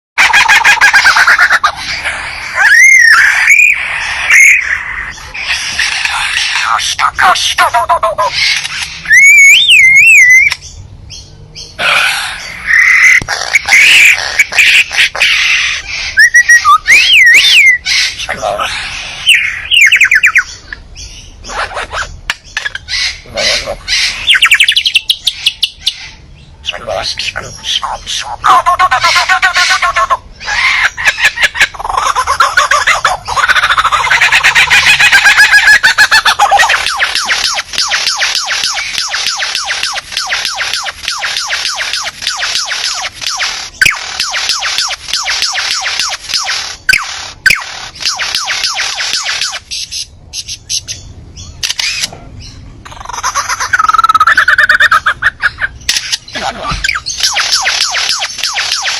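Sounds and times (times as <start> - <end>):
harsh raspy bird calls: 0.2 - 58.9
songbird singing: 0.2 - 58.9
bird whistling: 2.6 - 5.8, 8.3 - 10.6, 16.0 - 18.2, 19.2 - 20.8, 22.9 - 26.1, 32.6 - 51.0.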